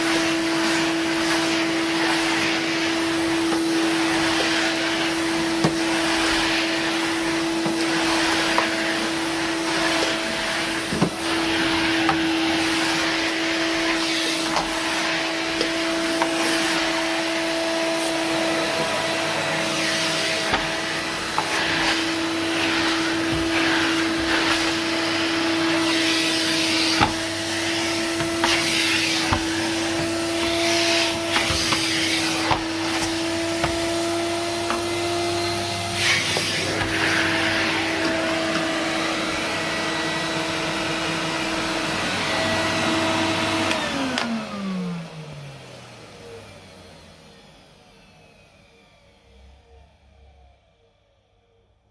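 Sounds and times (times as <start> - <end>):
vacuum cleaner running: 0.0 - 51.9.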